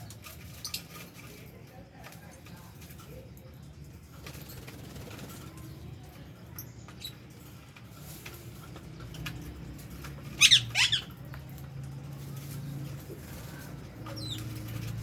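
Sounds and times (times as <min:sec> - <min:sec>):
parrot chirping: 0:10.4 - 0:11.1.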